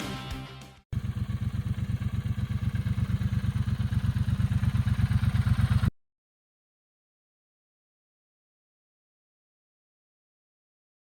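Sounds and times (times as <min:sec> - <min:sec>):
motorcycle engine running: 0:00.0 - 0:05.9.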